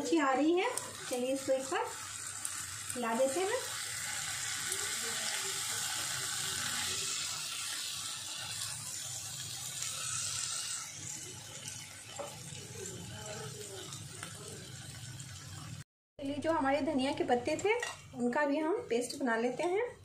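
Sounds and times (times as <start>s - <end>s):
chicken sizzling in a pan: 0.0s - 15.8s.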